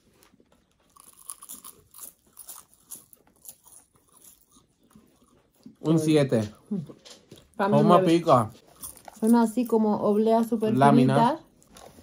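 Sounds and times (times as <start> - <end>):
crunchy snack being chewed: 0.0 - 7.6, 8.6 - 9.3.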